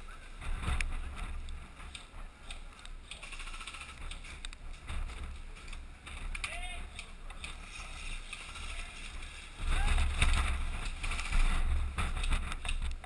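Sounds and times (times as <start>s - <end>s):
low rumble of wind: 0.0s - 13.0s
microphone handling noise: 9.2s - 13.0s.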